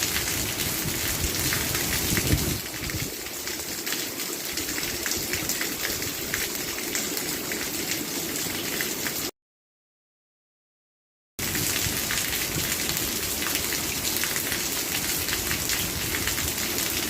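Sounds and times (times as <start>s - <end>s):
rain drops pattering: 0.0s - 9.3s, 11.4s - 17.0s.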